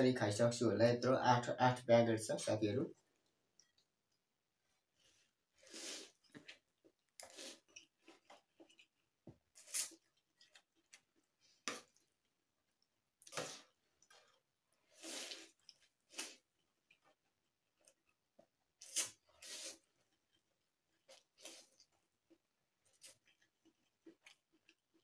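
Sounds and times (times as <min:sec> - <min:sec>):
chewing: 0:06.1 - 0:25.0
noodle slurping: 0:13.3 - 0:16.5.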